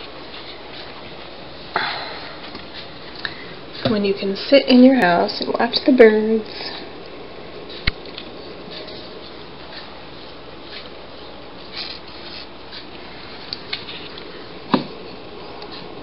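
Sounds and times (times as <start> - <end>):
soft clicks and rustles: 6.4 - 16.0.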